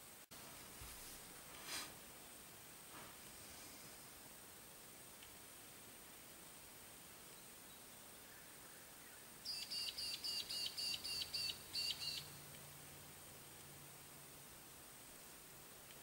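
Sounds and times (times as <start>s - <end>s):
faint steady hiss: 0.0s - 16.0s
small bird singing: 7.3s - 12.4s.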